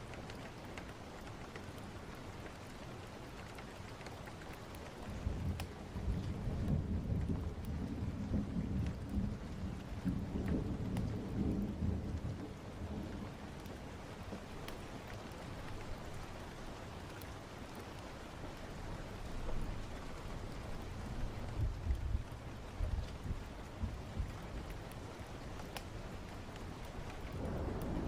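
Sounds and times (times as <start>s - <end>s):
steady rain: 0.0s - 28.0s
low roll of thunder: 5.1s - 14.1s, 26.8s - 28.0s.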